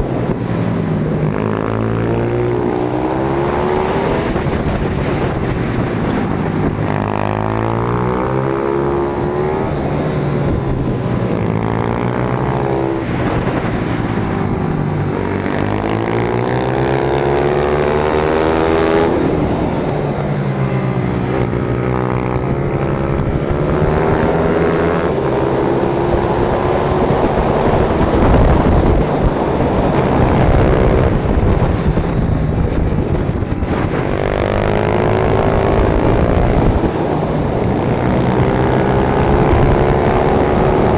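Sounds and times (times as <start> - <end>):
pit bike engine revving: 20.5 - 32.0.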